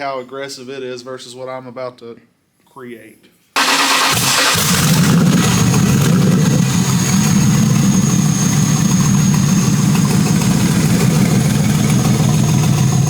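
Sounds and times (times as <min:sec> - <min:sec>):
car engine idling: 0:03.6 - 0:13.0.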